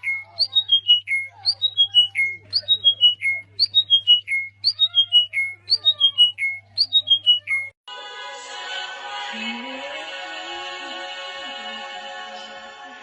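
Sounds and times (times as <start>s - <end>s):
bird whistling calls: 0.0s - 7.7s.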